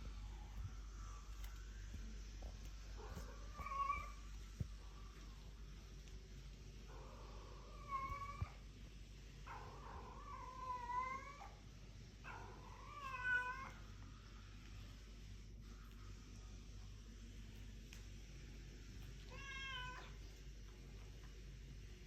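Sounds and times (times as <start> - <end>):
cat meowing: 3.4 - 4.2, 12.6 - 13.8, 19.3 - 20.2.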